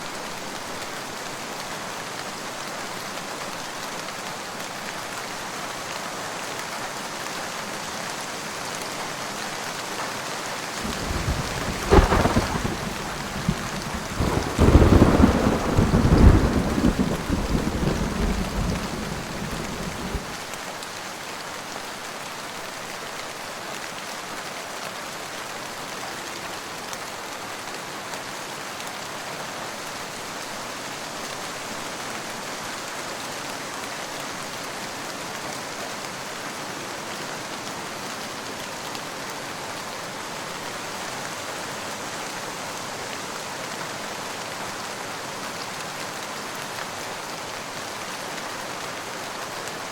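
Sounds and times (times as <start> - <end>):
heavy rain: 0.0 - 49.9
thunder crack and rumble: 10.8 - 20.4.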